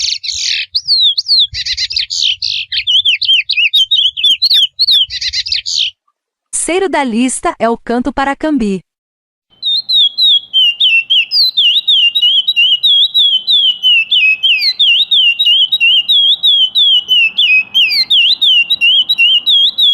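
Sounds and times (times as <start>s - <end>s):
bird whistling song: 0.0s - 6.0s, 9.5s - 19.9s.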